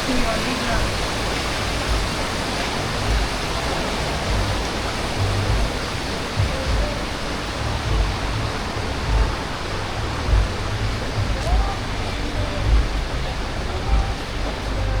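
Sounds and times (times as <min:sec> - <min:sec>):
low rumbles: 0:00.0 - 0:15.0
waterfall rushing: 0:00.0 - 0:15.0.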